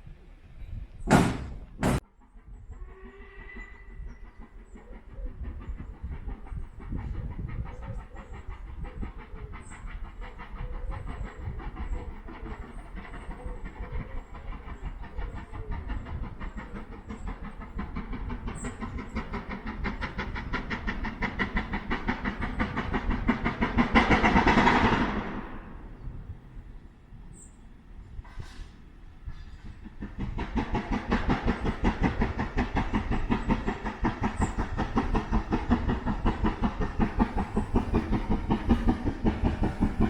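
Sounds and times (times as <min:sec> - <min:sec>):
rattle of train wheels: 0:00.0 - 0:40.0
train rumbling on track: 0:00.0 - 0:40.0.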